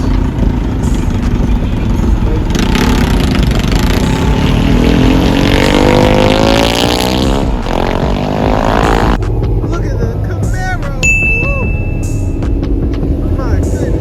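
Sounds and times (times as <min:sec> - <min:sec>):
vehicle engine accelerating: 0:00.0 - 0:11.0
traffic rumble: 0:00.0 - 0:14.0.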